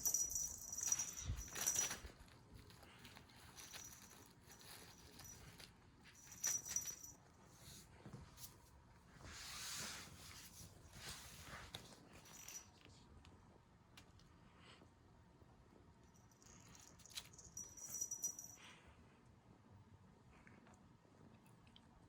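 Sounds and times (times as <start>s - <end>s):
cat toy jingling: 0.0s - 2.2s, 3.5s - 7.2s, 16.3s - 18.6s.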